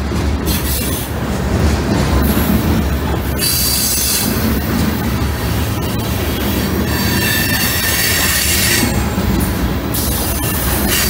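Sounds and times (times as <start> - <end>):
freight train rolling past: 0.0 - 11.0
high-pitched wheel squeal: 5.9 - 9.0.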